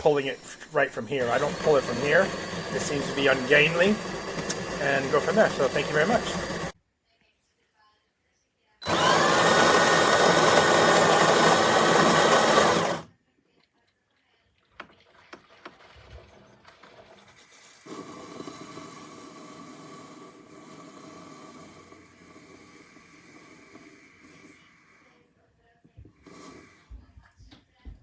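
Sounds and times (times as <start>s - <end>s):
espresso machine mechanical burst: 0.0s - 6.8s, 8.8s - 13.1s.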